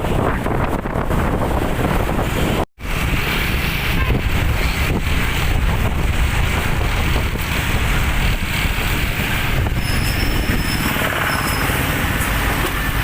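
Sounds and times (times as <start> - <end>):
truck engine and road noise: 0.0 - 13.0
high-pitched squeal: 9.1 - 13.0.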